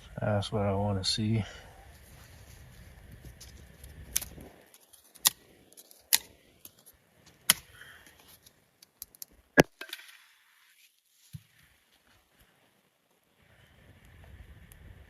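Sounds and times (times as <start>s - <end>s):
kindling wood snapping and popping: 2.5s - 10.4s.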